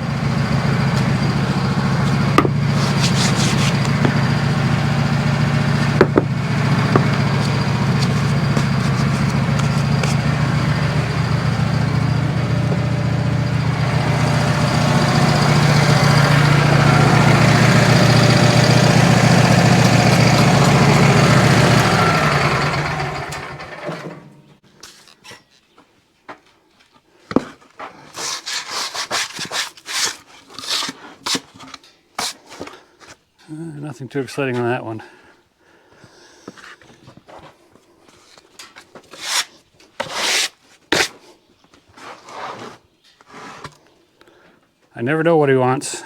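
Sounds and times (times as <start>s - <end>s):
band sawmill cutting log: 0.0s - 24.4s
wood knocking and scraping: 0.7s - 22.1s.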